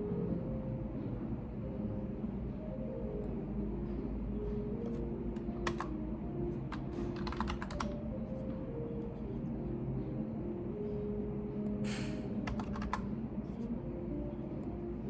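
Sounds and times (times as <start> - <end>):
steady low background sound: 0.0 - 15.0
computer keyboard typing: 4.9 - 6.0, 6.7 - 8.0, 12.4 - 13.1.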